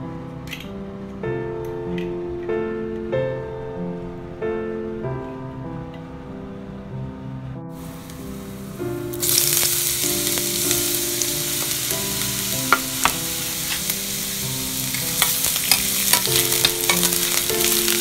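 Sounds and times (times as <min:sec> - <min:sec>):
garlic and onion sizzling in oil: 0:07.8 - 0:18.0
spatula clicking and scraping pan: 0:15.0 - 0:17.4.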